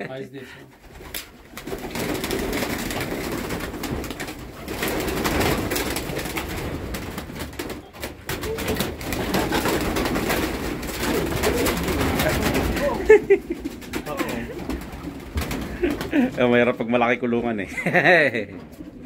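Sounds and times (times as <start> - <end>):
pigeons cooing: 7.5 - 16.4.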